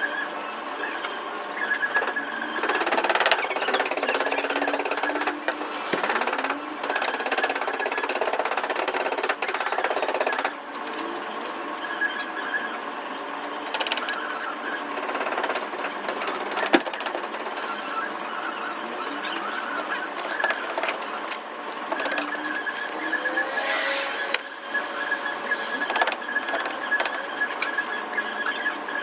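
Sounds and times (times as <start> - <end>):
rapid mechanical rattling: 1.9 - 11.2, 13.6 - 18.0, 19.0 - 23.0, 25.3 - 27.9.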